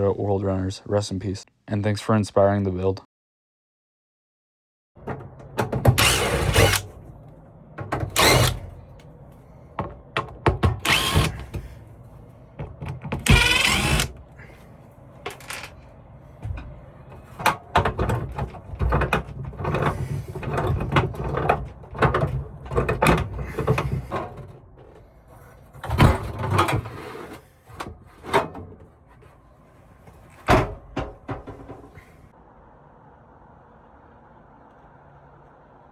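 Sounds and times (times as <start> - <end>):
power tool whirring: 5.9 - 6.9, 8.1 - 8.7, 10.8 - 11.6, 13.2 - 14.2
tool knocks scrapes and clatter: 16.4 - 29.4, 30.1 - 32.2.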